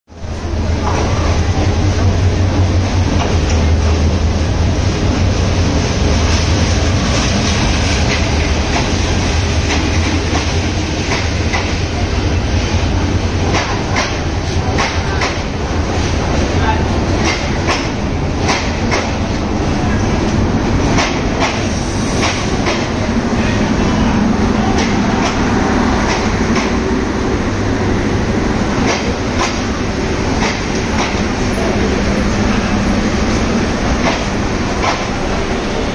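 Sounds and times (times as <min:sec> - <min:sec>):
train coaches rumbling past: 0:00.1 - 0:35.9.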